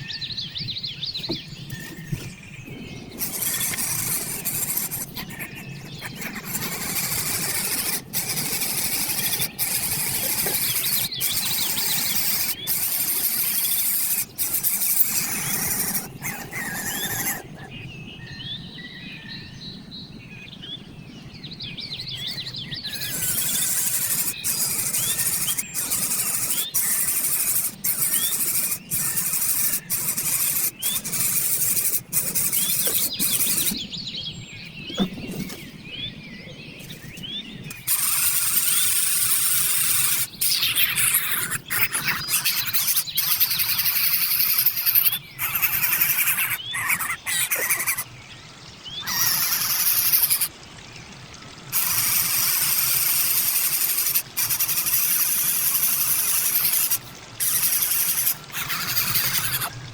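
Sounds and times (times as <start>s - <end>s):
bird chirping: 0.0s - 19.9s, 21.3s - 48.0s, 48.9s - 50.5s
steady high hiss: 22.2s - 33.8s, 37.7s - 40.9s, 49.1s - 50.5s, 51.7s - 59.7s.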